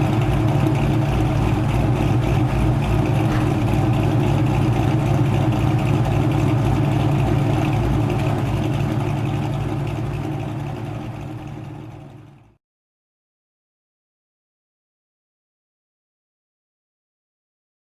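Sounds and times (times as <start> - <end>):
car engine idling: 0.0 - 12.6.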